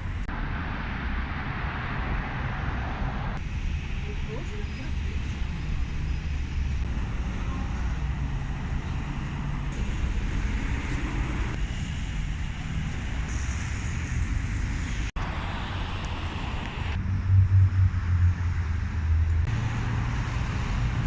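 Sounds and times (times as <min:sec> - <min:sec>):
idling engines hum: 0:00.0 - 0:21.0
traffic rumble: 0:00.0 - 0:21.0.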